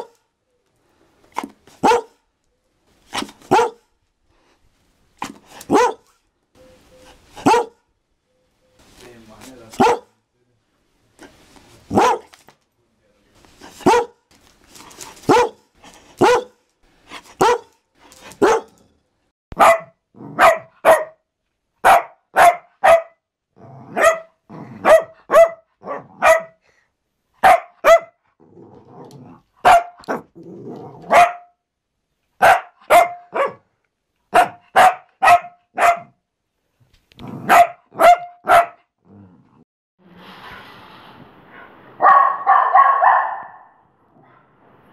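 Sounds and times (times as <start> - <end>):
dog barking: 1.8 - 2.2, 3.5 - 3.9, 5.7 - 6.1, 7.4 - 7.8, 9.8 - 10.2, 11.9 - 12.3, 13.8 - 14.2, 15.3 - 16.6, 17.4 - 17.8, 18.4 - 18.8, 19.5 - 21.2, 21.8 - 23.2, 23.9 - 26.6, 27.4 - 28.2, 29.6 - 30.3, 31.0 - 31.6, 32.4 - 33.7, 34.3 - 36.2, 37.4 - 38.9, 42.0 - 43.8
high-pitched dog barks: 1.8 - 2.2, 3.2 - 3.9, 5.6 - 6.1, 7.4 - 7.8, 9.8 - 10.2, 11.9 - 12.3, 13.8 - 14.2, 15.3 - 16.6, 17.4 - 17.8, 18.4 - 18.8, 19.5 - 21.2, 21.8 - 23.2, 23.9 - 26.6, 27.4 - 28.2, 29.6 - 30.3, 31.0 - 31.6, 32.4 - 33.7, 34.3 - 36.2, 37.4 - 38.9, 42.0 - 43.8.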